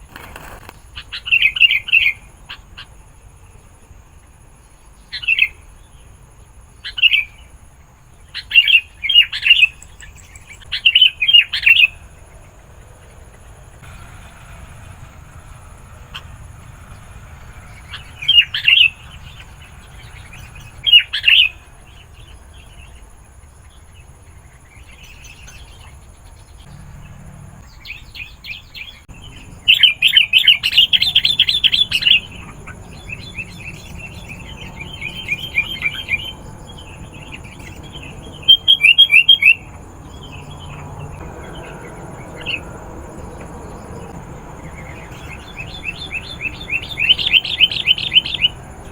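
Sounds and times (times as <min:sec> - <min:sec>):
bulbul chirping: 0:11.5 - 0:21.6, 0:29.1 - 0:48.9.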